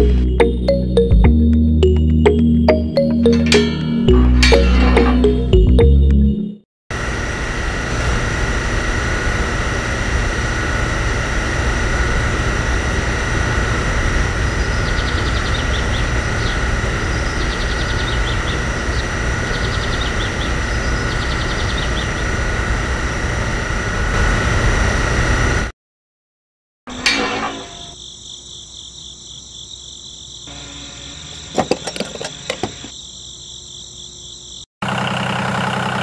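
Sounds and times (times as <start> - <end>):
small motor humming and whining: 7.0 - 25.7, 30.5 - 33.0.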